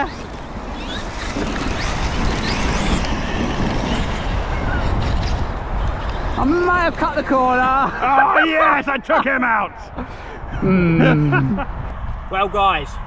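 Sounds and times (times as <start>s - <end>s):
electric motors whining: 0.0s - 6.6s
wind rumbling on microphone: 0.0s - 8.2s, 9.8s - 13.0s.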